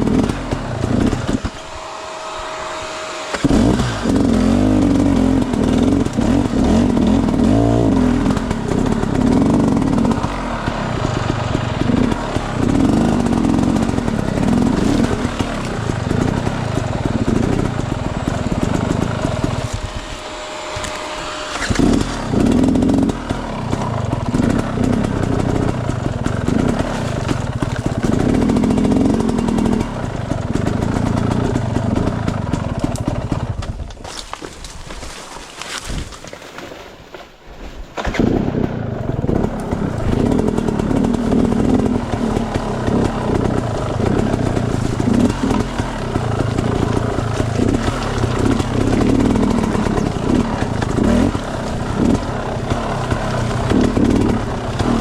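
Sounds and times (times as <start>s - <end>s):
dirt bike engine revving: 0.0s - 33.8s, 38.0s - 55.0s.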